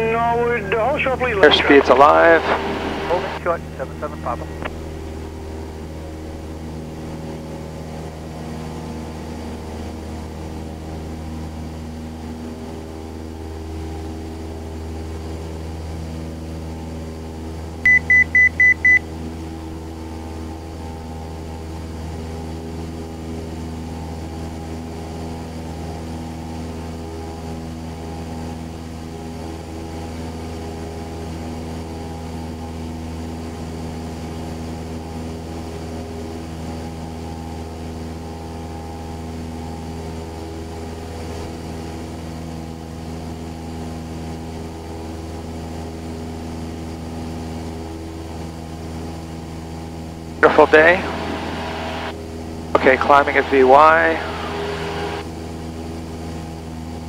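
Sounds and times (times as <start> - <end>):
propeller engine idling: 0.0 - 57.0
short high beeps: 17.9 - 19.0.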